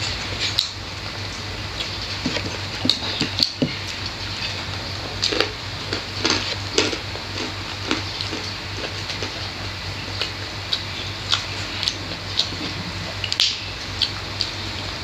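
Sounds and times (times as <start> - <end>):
steady low hum: 0.0 - 15.0
wet chewing and lip smacks: 5.2 - 14.6.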